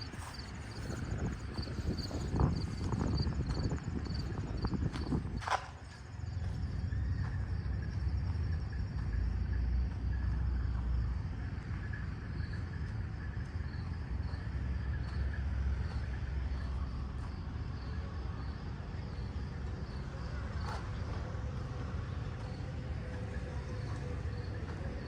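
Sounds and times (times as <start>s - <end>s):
low engine rumble: 0.0s - 25.0s
faint insect chirping: 6.0s - 25.0s.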